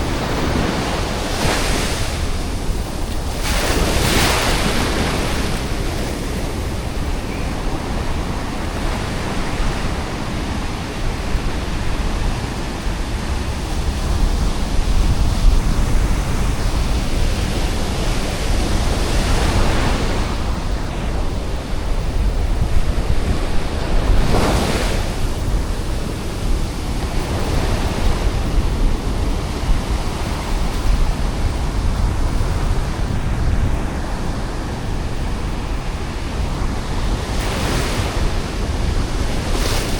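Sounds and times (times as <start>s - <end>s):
waves breaking on beach: 0.0s - 39.9s
wind buffeting microphone: 0.0s - 39.9s.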